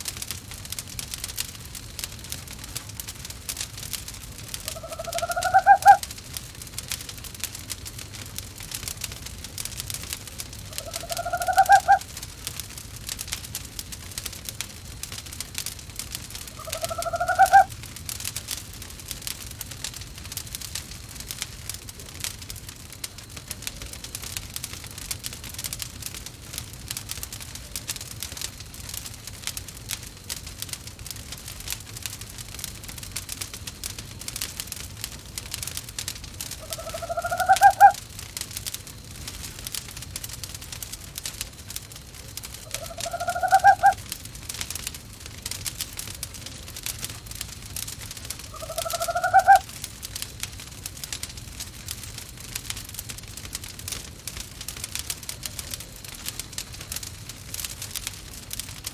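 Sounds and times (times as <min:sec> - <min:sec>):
wood fire crackling: 0:00.0 - 0:58.9
owl calling: 0:04.5 - 0:06.0, 0:10.7 - 0:12.1, 0:16.6 - 0:17.7, 0:36.6 - 0:38.0, 0:42.7 - 0:44.0, 0:48.5 - 0:49.7.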